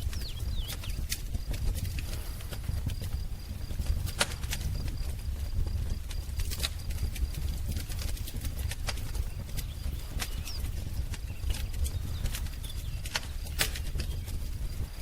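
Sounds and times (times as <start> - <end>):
bird chirp: 0.0 - 1.1, 8.9 - 15.0
wood fire crackling: 0.0 - 15.0.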